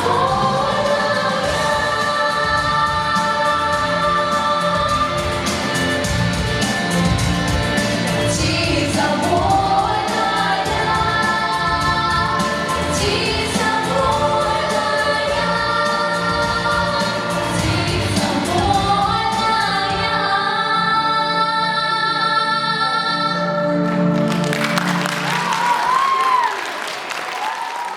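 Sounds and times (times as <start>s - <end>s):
vocal ensemble singing pop song: 0.0s - 24.2s
musical accompaniment: 0.0s - 27.9s
audience applauding: 23.9s - 27.9s.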